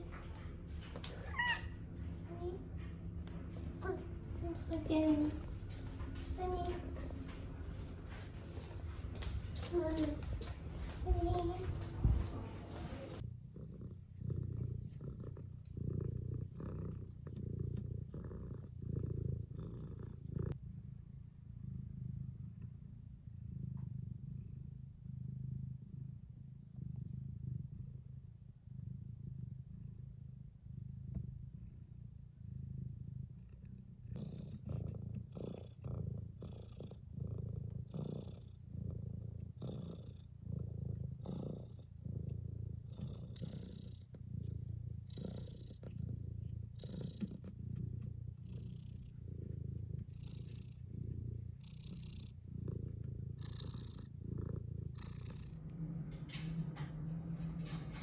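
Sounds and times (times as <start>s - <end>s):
short rustling: 0.0s - 13.2s
cat purring: 0.0s - 58.0s.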